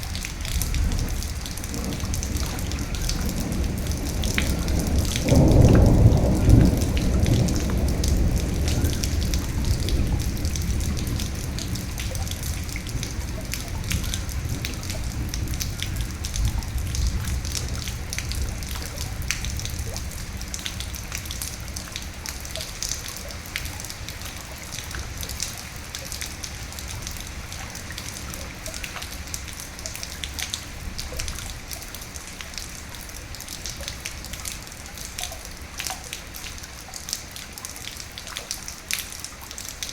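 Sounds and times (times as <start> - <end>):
low rumble of thunder: 0.0 - 32.2
raindrops ticking: 0.0 - 39.9
steady rain: 0.0 - 39.9.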